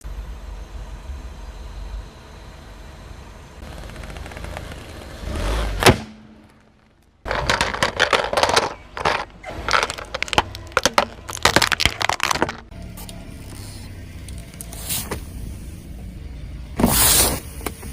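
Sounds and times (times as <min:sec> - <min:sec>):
car tyre rolling low rumble: 0:00.0 - 0:17.9
sharp crack: 0:03.6 - 0:12.7
crackling crunches: 0:03.6 - 0:13.8.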